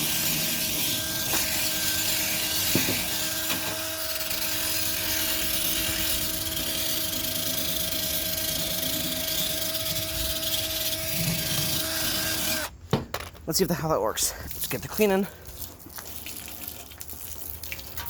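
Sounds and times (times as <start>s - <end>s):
electric drill motor whine: 0.0s - 12.8s.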